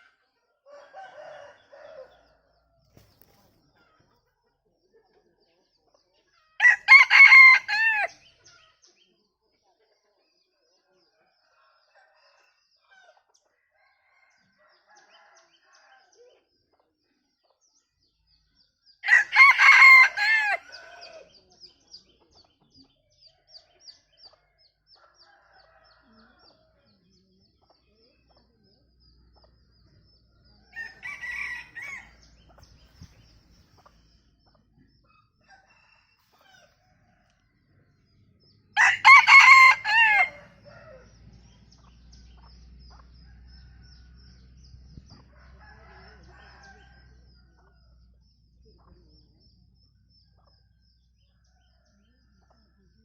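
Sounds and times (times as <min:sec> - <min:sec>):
rooster crowing: 0:06.6 - 0:08.2, 0:19.0 - 0:21.2, 0:30.7 - 0:32.3, 0:38.8 - 0:41.1, 0:45.4 - 0:47.0.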